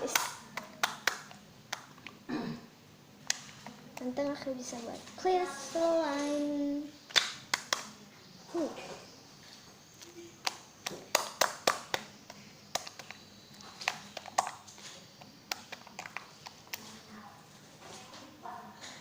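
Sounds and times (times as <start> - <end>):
slime clicking and popping: 10.4 - 14.7.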